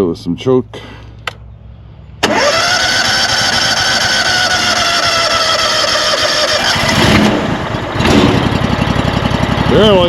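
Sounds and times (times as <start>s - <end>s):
gasoline engine starting: 2.2s - 8.5s.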